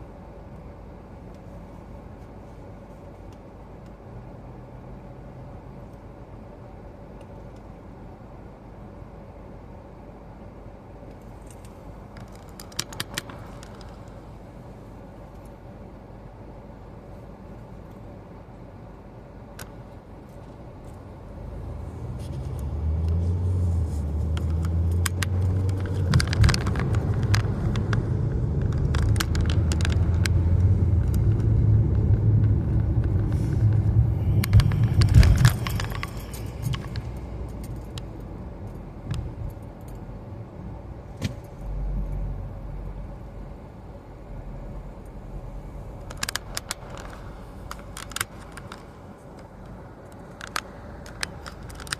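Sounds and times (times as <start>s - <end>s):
road and engine rumble: 0.0s - 51.9s
light rattles and clicks: 11.1s - 14.2s, 22.2s - 40.0s, 46.0s - 51.9s.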